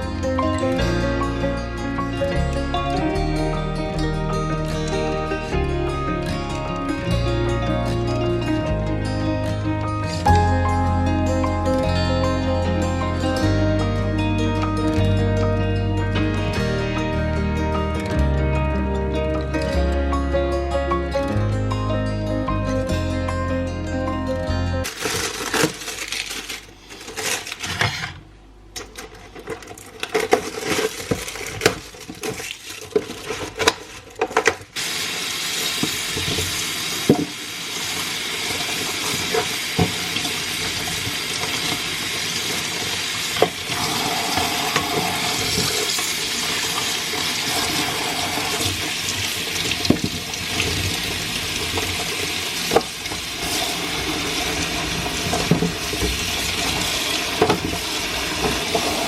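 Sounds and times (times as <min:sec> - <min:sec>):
objects being handled: 0:24.8 - 0:34.8
items clinking while washed: 0:24.8 - 0:59.0
kitchen tap running: 0:34.4 - 0:59.0.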